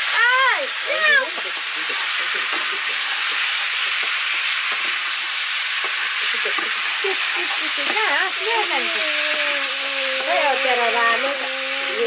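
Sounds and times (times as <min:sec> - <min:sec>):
squash sizzling in a wok: 0:00.0 - 0:12.0
spatula scraping and tapping pan: 0:01.3 - 0:05.0, 0:05.8 - 0:08.8.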